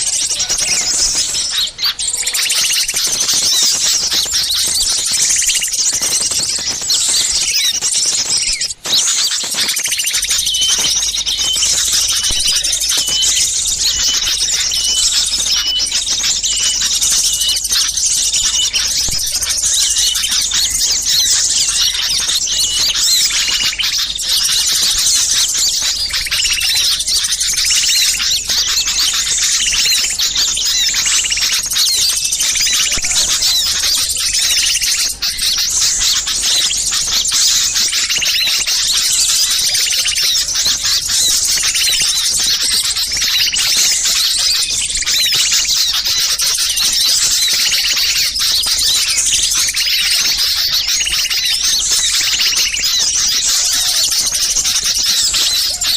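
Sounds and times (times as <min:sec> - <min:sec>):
small songbirds chirping: 0:00.0 - 0:55.9.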